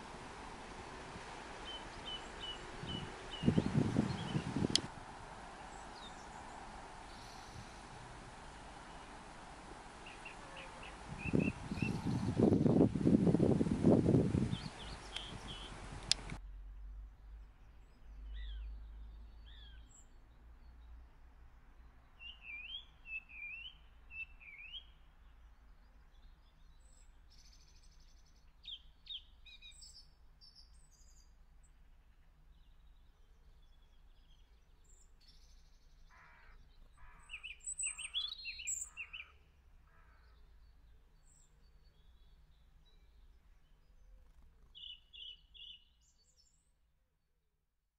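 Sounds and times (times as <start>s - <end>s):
birds chirping and singing: 1.6s - 4.8s, 10.0s - 12.8s, 14.5s - 15.8s, 37.2s - 39.3s
harsh bird calls: 10.0s - 12.5s, 14.5s - 15.9s, 36.0s - 40.5s.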